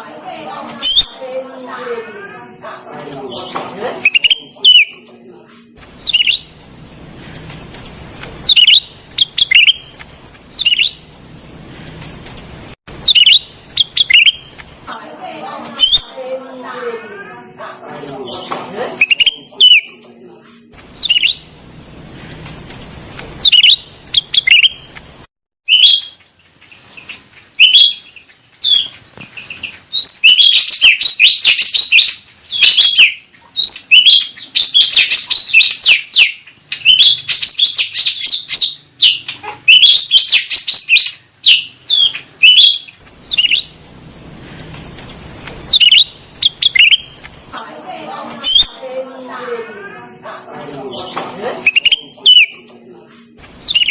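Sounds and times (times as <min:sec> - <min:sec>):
songbird chirping and chattering: 0:03.2 - 0:05.1, 0:06.0 - 0:07.1, 0:08.4 - 0:10.0, 0:10.6 - 0:11.0, 0:13.0 - 0:14.6, 0:18.2 - 0:20.0, 0:21.0 - 0:21.5, 0:23.4 - 0:24.9, 0:25.7 - 0:44.3, 0:45.7 - 0:47.6, 0:48.4 - 0:48.8, 0:50.9 - 0:52.7, 0:53.6 - 0:53.9.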